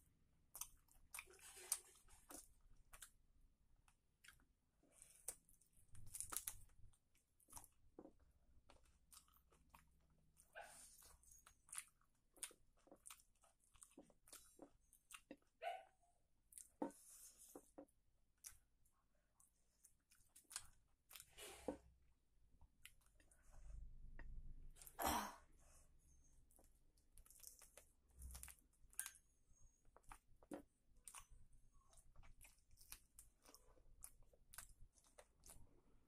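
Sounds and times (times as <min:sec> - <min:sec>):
chicken being bitten and chewed: 0:26.5 - 0:36.0.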